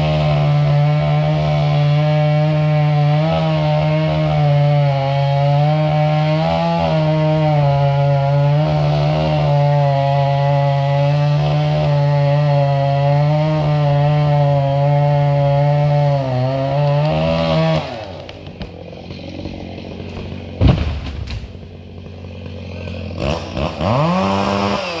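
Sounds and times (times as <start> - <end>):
chainsaw revving: 0.0 - 25.0
heavy thump: 20.2 - 21.8.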